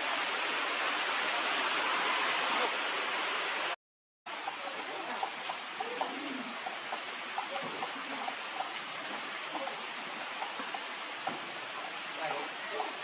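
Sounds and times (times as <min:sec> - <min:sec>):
rain falling: 0:00.0 - 0:13.0
raindrop ticks: 0:04.3 - 0:12.0.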